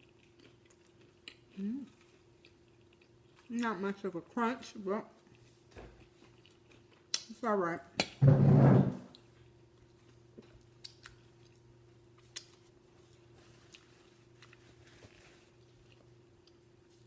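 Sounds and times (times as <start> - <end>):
chewing mouth clicks and smacks: 0.0 - 3.5, 5.2 - 7.4, 9.1 - 12.8
low steady hum: 0.0 - 17.0.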